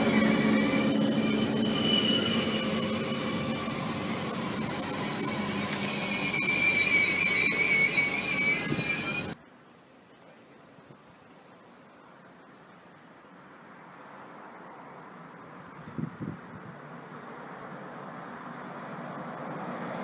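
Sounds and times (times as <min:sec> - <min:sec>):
rail rumble: 0:00.0 - 0:09.4
train wheels squealing: 0:00.0 - 0:09.4.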